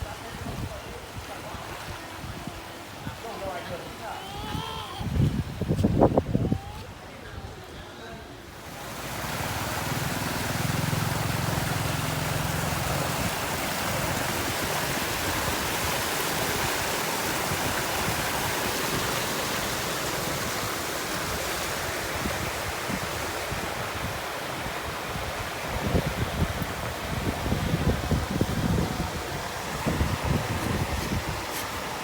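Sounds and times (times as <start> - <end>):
water rushing out: 8.4 - 32.0.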